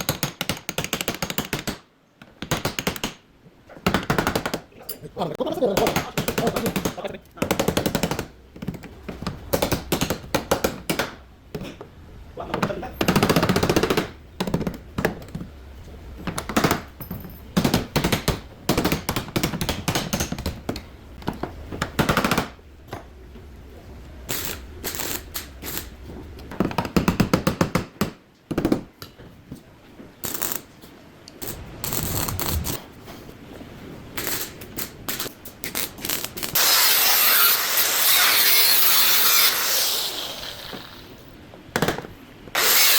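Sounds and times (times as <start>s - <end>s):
rushing tool noise: 36.6s - 41.3s, 42.5s - 42.9s.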